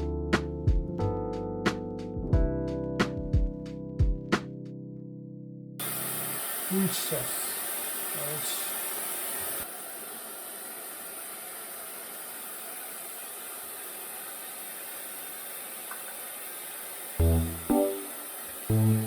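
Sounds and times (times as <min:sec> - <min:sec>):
piano-like music notes: 0:00.0 - 0:05.6, 0:17.2 - 0:19.0
hair dryer blowing: 0:05.8 - 0:19.0.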